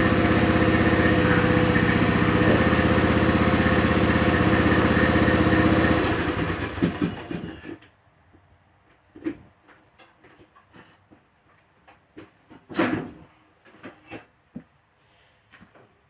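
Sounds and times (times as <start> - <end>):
engine stopping knock: 0.0 - 7.7
riding lawn mower engine: 0.0 - 7.8.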